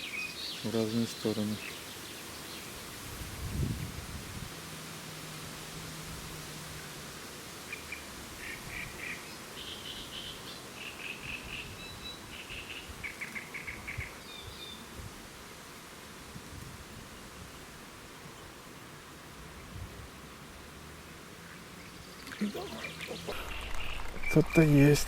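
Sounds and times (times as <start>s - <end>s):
songbird singing: 0.0s - 3.7s, 7.6s - 14.9s, 21.4s - 25.0s
outdoor wind noise: 2.8s - 9.1s.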